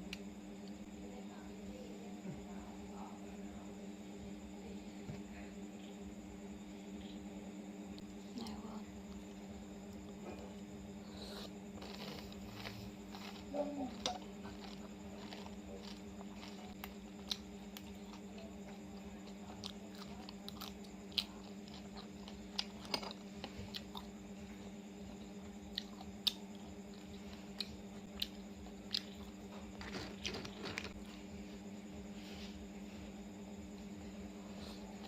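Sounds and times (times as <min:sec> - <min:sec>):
person chewing oysters: 0:09.1 - 0:24.2, 0:25.0 - 0:31.0.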